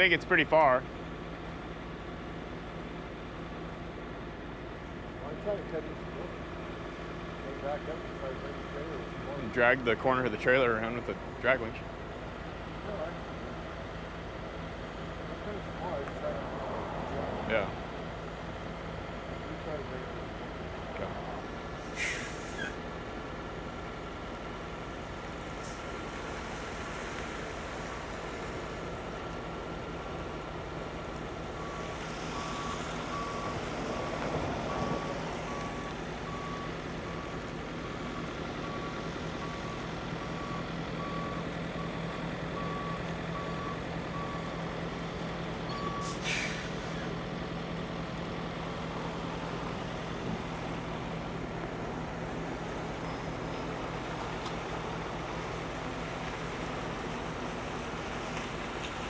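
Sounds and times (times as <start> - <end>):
diesel truck engine running: 0.0 - 59.0
short sharp hiss: 21.8 - 22.8, 46.0 - 46.8
reversing alarm beeping: 28.2 - 44.8, 45.6 - 46.2.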